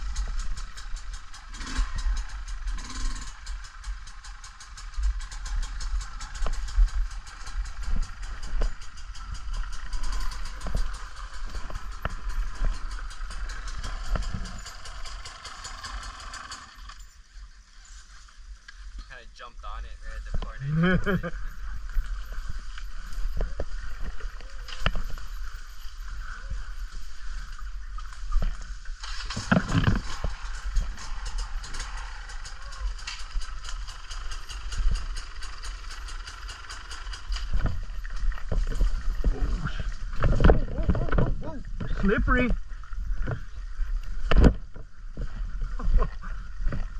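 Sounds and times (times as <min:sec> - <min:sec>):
rapid ticking rattle: 0:00.0 - 0:17.3, 0:20.2 - 0:44.4
wind rumbling on microphone: 0:04.9 - 0:15.0, 0:37.2 - 0:46.9
wind rumbling over microphone: 0:37.4 - 0:46.9.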